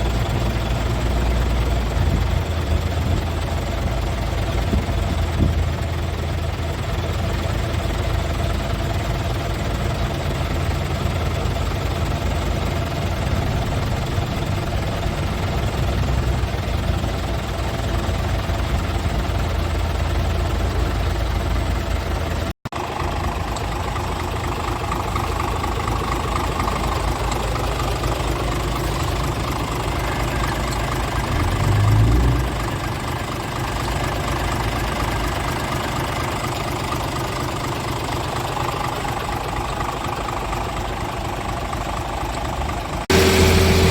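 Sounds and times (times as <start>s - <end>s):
diesel truck engine idling: 0.0s - 43.9s.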